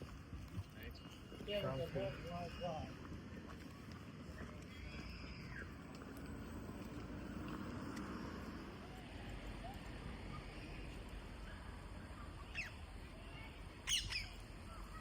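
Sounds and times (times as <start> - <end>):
faint outdoor ambience: 0.0 - 15.0
bird calls: 12.1 - 12.9, 13.8 - 15.0.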